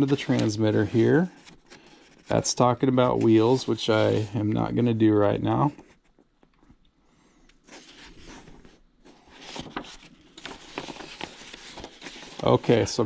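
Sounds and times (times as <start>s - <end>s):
paper rustling: 0.0s - 4.9s, 7.6s - 13.0s.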